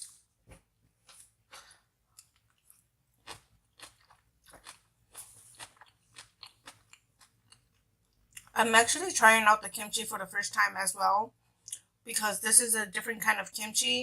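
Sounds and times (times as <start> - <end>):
person chewing food: 0.0 - 8.6.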